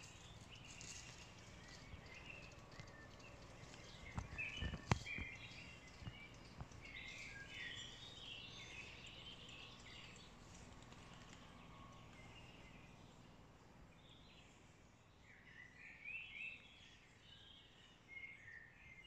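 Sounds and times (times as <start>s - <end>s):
faint outdoor background noise: 0.0s - 19.0s
wild birds chirping: 0.0s - 19.0s.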